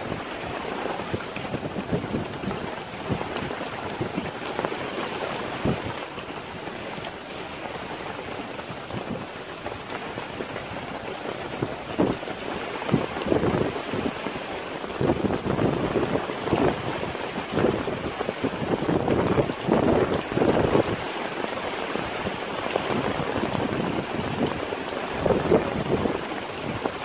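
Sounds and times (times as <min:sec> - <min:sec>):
heavy rain pouring: 0:00.0 - 0:27.0
wind gusts: 0:00.0 - 0:27.0.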